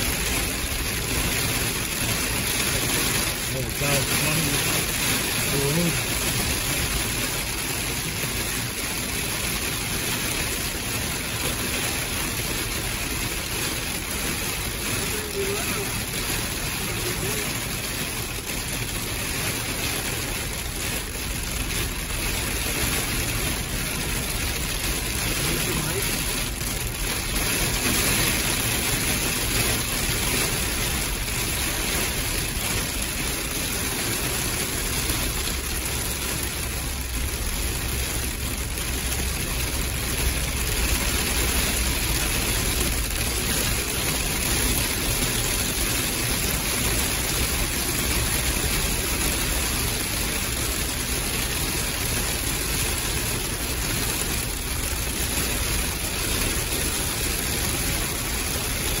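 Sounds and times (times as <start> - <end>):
heavy rain on windshield: 0.0 - 59.0
vehicle engine running: 10.8 - 53.8.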